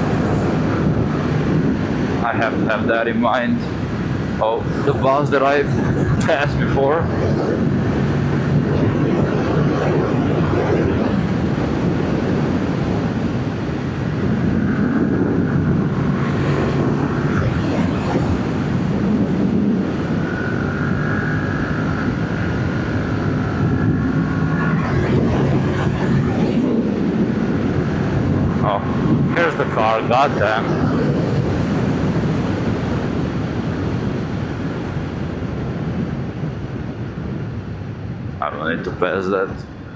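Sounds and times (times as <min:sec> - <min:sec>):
rush of riding noise: 0:00.0 - 0:39.0.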